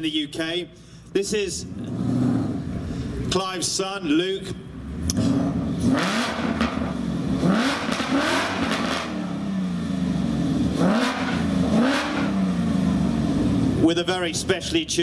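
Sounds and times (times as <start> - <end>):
car engine idling and revving: 0.9 - 15.0.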